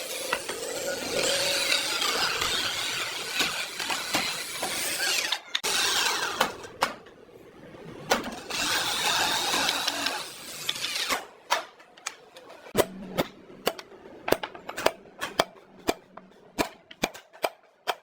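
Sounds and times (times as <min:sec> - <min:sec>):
power tool running: 0:00.0 - 0:06.6.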